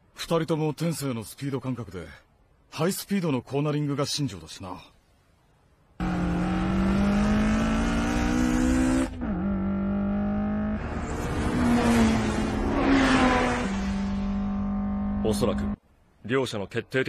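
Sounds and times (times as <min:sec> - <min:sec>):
sports car engine revving: 0:06.0 - 0:15.8.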